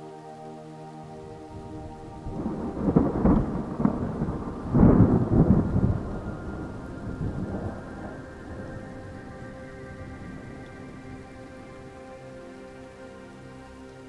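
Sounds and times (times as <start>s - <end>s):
steady rain-like hiss: 0.0s - 14.0s
thunder rumbling: 1.0s - 12.1s.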